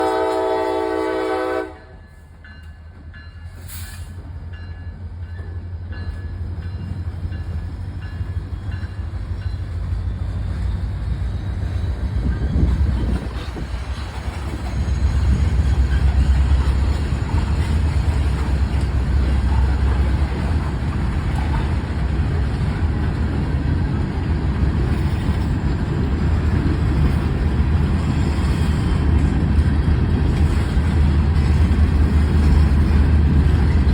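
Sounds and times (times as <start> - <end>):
train horn: 0.0 - 2.3
passing train rumble: 0.0 - 33.9.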